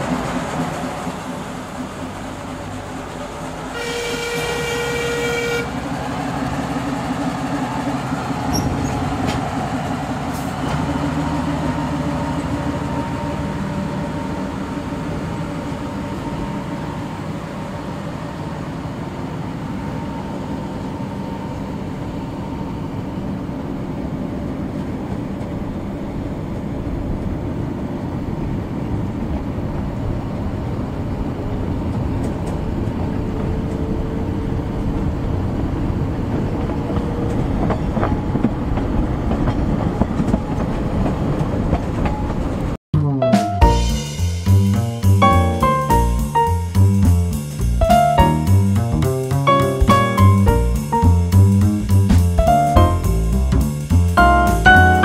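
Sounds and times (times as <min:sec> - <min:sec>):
low engine drone: 0:00.0 - 0:37.1
train horn: 0:03.7 - 0:06.0.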